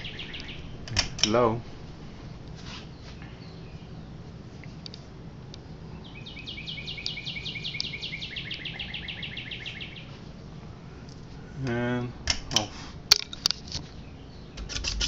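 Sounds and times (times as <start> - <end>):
songbird trilling: 0.0 - 1.4, 5.9 - 10.2
ceiling fan humming: 0.0 - 15.0.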